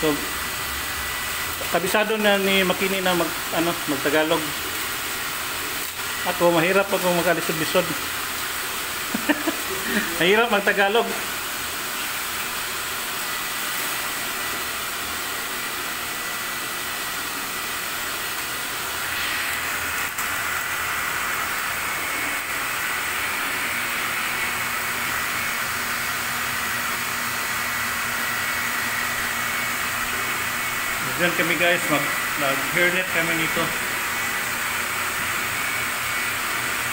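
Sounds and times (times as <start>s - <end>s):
machinery whirring hiss: 17.4s - 24.4s.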